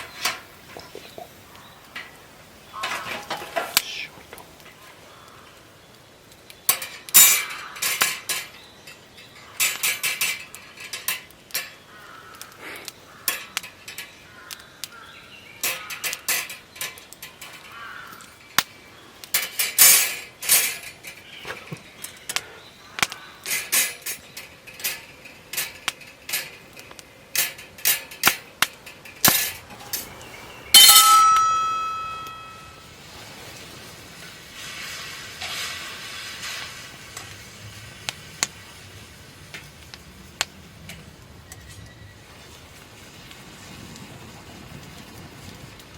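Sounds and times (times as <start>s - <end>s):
metal cookware clinking: 30.8s - 32.8s
struck metal ringing: 30.8s - 32.8s.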